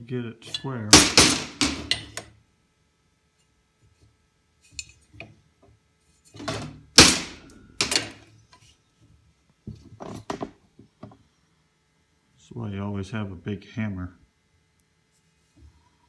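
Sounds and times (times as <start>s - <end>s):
hammer striking steel: 0.5s - 2.2s, 7.0s - 8.1s.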